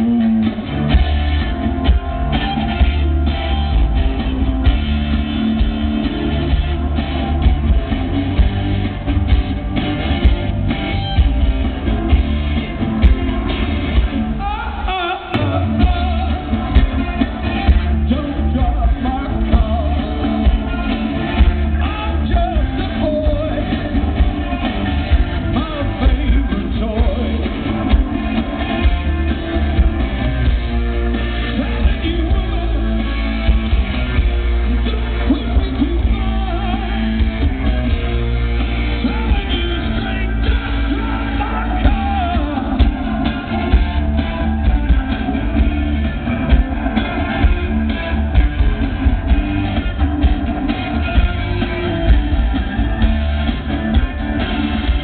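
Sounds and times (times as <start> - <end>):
lead singer: 0.0 - 55.0
rock band playing: 0.0 - 55.0.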